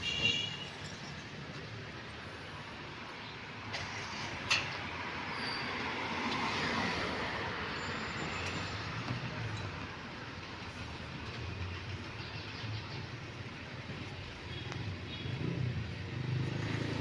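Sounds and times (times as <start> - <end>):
vehicle passing: 15.2 - 17.0.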